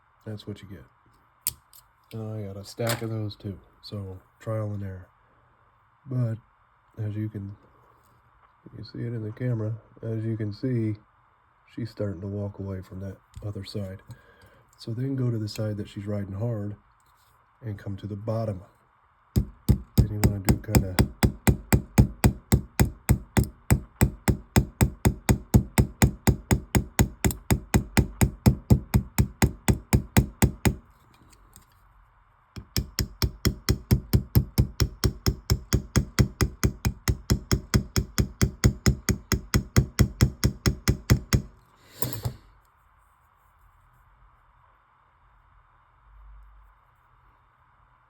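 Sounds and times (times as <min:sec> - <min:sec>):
small hammer tapping metal pin: 0:19.4 - 0:30.8, 0:32.6 - 0:42.4.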